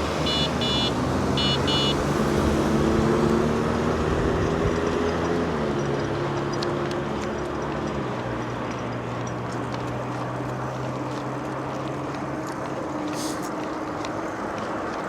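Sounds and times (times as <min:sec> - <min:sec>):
traffic: 0:00.0 - 0:15.0
short high beeps: 0:00.2 - 0:02.0.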